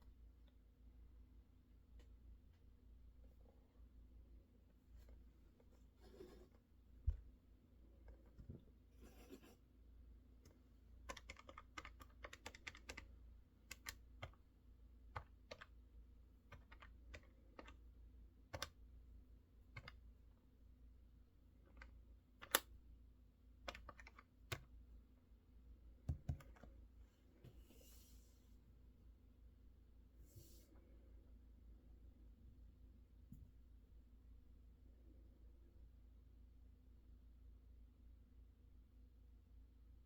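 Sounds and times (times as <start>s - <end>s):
mechanical keyboard typing: 11.0s - 13.1s, 13.7s - 14.4s, 15.1s - 15.8s, 16.5s - 17.8s, 18.5s - 18.8s, 19.8s - 20.0s, 21.8s - 22.6s, 23.7s - 24.7s.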